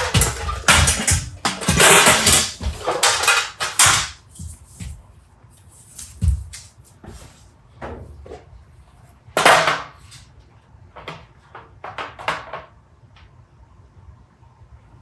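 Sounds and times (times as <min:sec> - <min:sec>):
hard objects knocking and scraping: 0:00.0 - 0:05.0.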